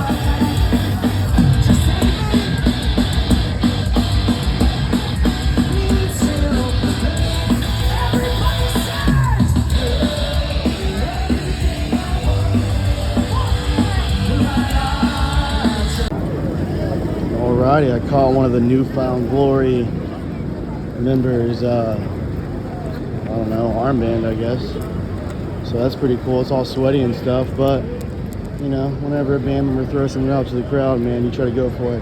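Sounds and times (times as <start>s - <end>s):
live rock band: 0.0s - 16.1s
singer yelling and singing: 0.0s - 16.1s.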